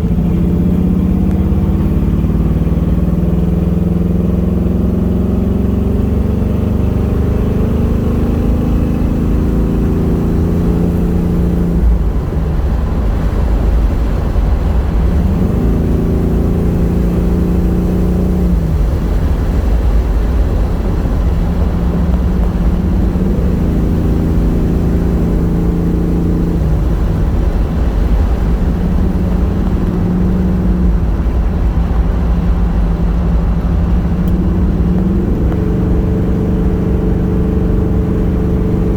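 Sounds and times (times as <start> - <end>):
car engine revving: 0.0 - 38.9
road noise: 0.0 - 38.9.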